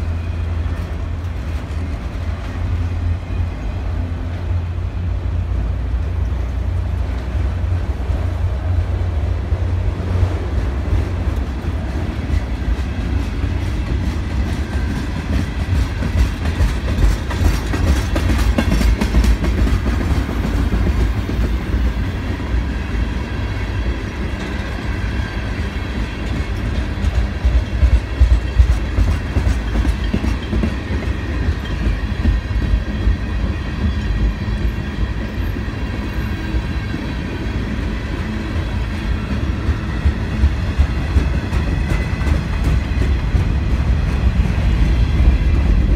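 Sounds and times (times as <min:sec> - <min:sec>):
freight train rumbling past: 0:00.0 - 0:45.9
wheels clacking over rail joints: 0:09.4 - 0:45.9.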